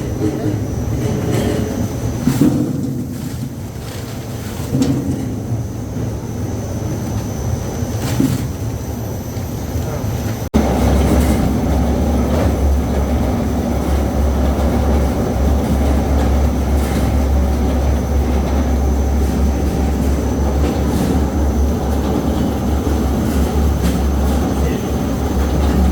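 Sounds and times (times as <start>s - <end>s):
machine mechanical rumble: 0.0s - 25.9s
low hum: 10.5s - 25.9s.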